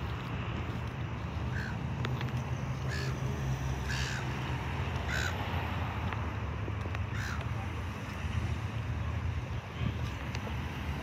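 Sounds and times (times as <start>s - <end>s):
crow cawing: 1.5s - 1.8s, 2.9s - 3.2s, 3.8s - 4.3s, 5.1s - 5.4s, 7.1s - 7.4s.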